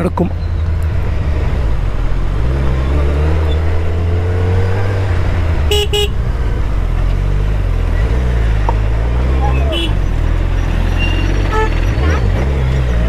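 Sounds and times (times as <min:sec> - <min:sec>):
motorcycle engine cruising: 0:00.0 - 0:13.0
horn short beeps: 0:11.0 - 0:12.3.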